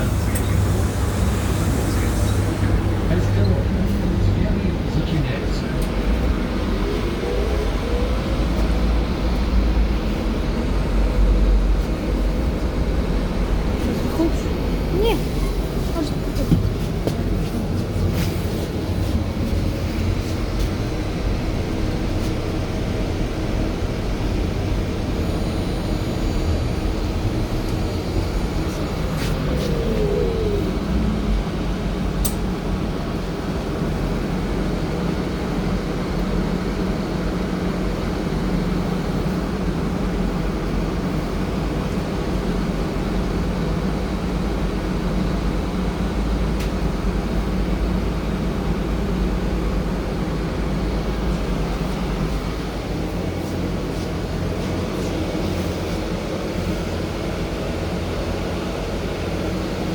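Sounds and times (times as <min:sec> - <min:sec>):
short falling whine: 0:00.0 - 0:16.0, 0:24.9 - 0:33.1
trolleybus rumble and hum: 0:00.0 - 0:59.9.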